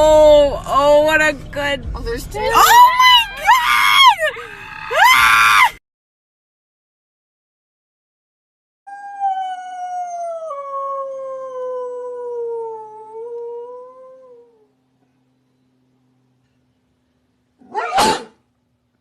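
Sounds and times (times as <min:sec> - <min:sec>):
dog howling: 0:02.6 - 0:05.8.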